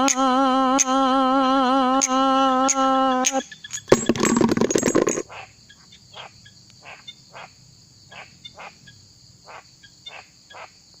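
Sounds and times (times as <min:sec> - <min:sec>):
frogs croaking: 0:05.2 - 0:11.0
high drone of insects: 0:05.2 - 0:11.0.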